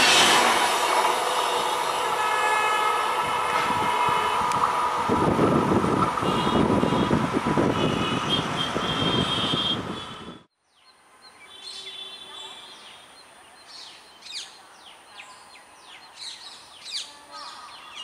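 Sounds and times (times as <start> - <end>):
train coaches rumbling on rails: 0.0 - 10.2.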